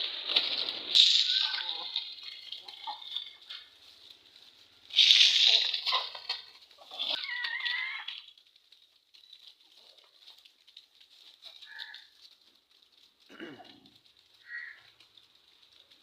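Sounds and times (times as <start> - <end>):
rustling: 0.0 - 16.0
chicken wavering call: 1.0 - 2.0
faint chicken clucks: 11.5 - 12.1.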